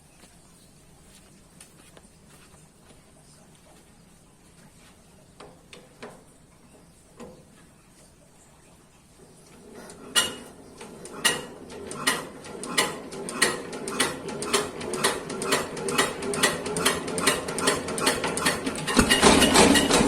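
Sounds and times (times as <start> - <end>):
diesel engine hand-cranked knocking: 9.9 - 20.0.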